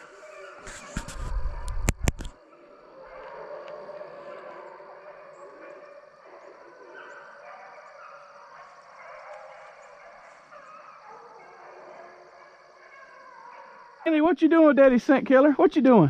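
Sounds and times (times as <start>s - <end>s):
dogs barking and baying: 0.0s - 14.0s.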